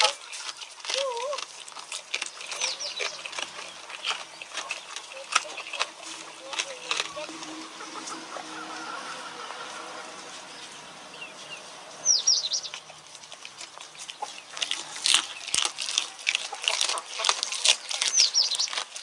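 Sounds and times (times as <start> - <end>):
sharp clicks and crunches: 0.0 - 8.2, 12.6 - 19.0
bird chirps: 2.3 - 14.6, 17.9 - 18.8.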